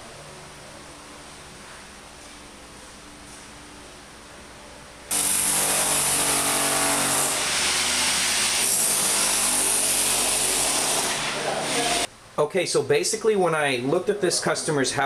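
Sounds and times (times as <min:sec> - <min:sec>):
power tool running: 0:05.1 - 0:12.1.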